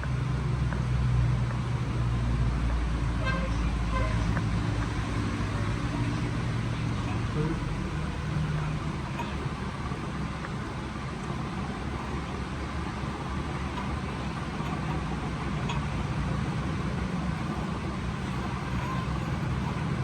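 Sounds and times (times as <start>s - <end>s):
motor vehicles rumbling: 0.0s - 20.0s
faint clicks: 2.6s - 7.2s.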